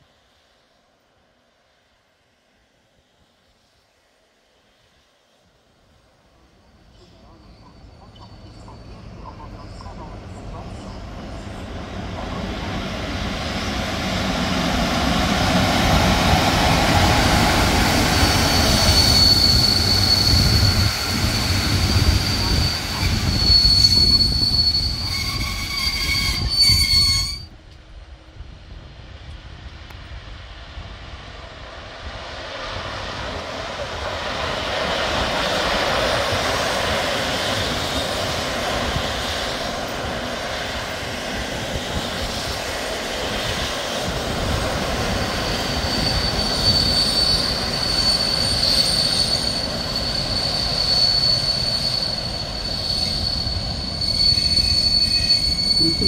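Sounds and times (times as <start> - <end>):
train rolling in: 6.1 - 56.0
heavy rail rumble: 6.3 - 56.0
high wheel squeal: 17.9 - 27.5, 45.2 - 56.0.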